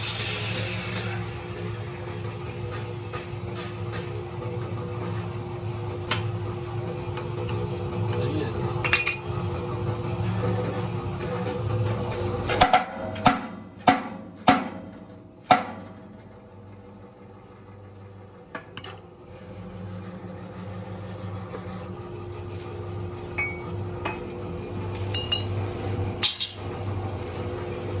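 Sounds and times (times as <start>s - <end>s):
low machine hum: 0.0s - 28.0s
metal workpieces clanking: 8.8s - 9.4s, 26.2s - 26.7s.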